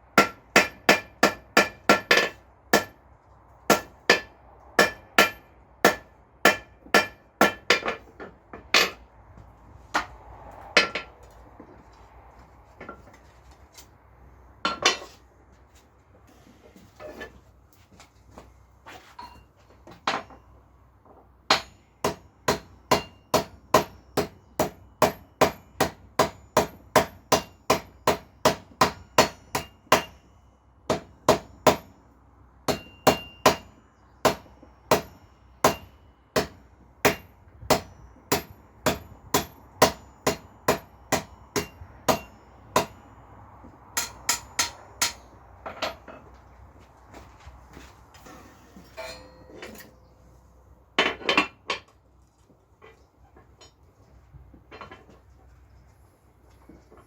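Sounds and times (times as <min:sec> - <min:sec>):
hammer striking iron on anvil: 0:00.2 - 0:03.0, 0:03.7 - 0:09.0, 0:10.8 - 0:11.1, 0:21.5 - 0:30.3, 0:30.9 - 0:32.0, 0:32.7 - 0:43.1, 0:44.0 - 0:46.2, 0:49.0 - 0:50.0.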